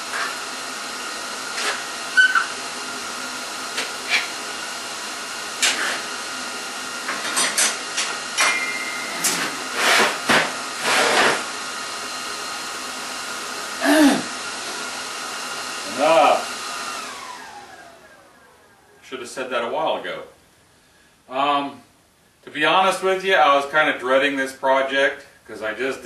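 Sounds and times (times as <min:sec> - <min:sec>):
electric fan motor whirring: 0:00.0 - 0:19.0.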